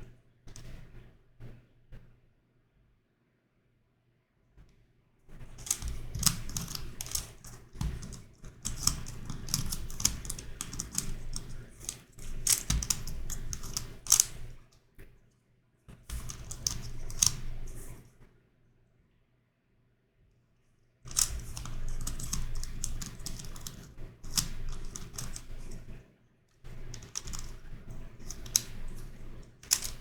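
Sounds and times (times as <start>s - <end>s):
puzzle cube clicking: 5.6s - 14.6s, 16.1s - 17.9s, 21.1s - 25.8s, 26.8s - 30.0s.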